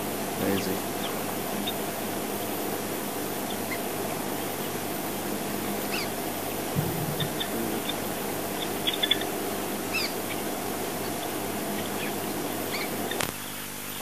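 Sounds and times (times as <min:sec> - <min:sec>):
constant hiss: 0:00.0 - 0:14.0
faint bird chirps: 0:00.4 - 0:14.0
low thump: 0:06.8 - 0:07.5.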